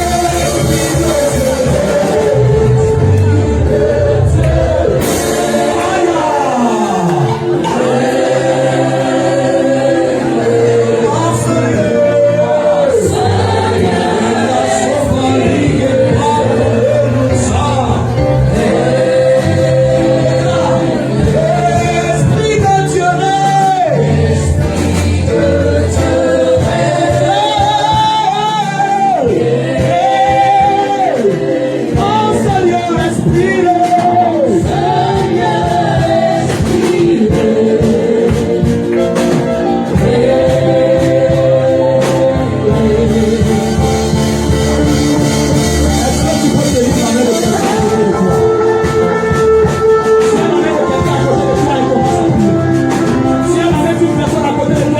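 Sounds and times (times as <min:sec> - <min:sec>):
band with bass and percussion: 0:00.0 - 0:54.9
voices singing with vibrato: 0:00.0 - 0:54.9.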